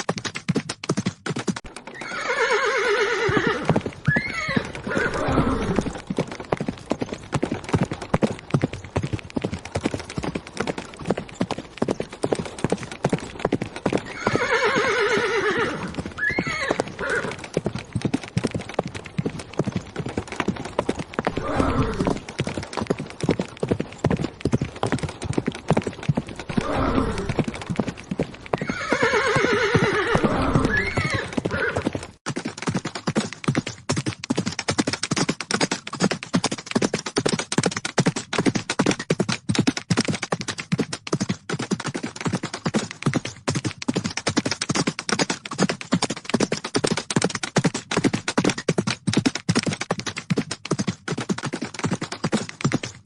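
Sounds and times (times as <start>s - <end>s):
horses galloping: 0.0s - 53.0s
horse neighing: 1.9s - 6.0s, 14.1s - 17.4s, 21.3s - 22.2s, 26.5s - 27.4s, 28.6s - 31.8s.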